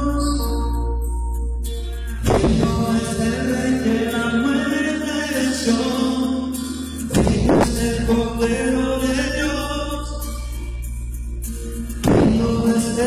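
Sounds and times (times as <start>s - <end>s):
person singing: 0.0s - 1.0s, 2.1s - 10.5s, 12.0s - 13.0s
loud percussive hit: 2.2s - 3.0s, 7.1s - 8.0s, 12.0s - 12.6s
worship band playing: 2.2s - 6.2s, 12.0s - 13.0s.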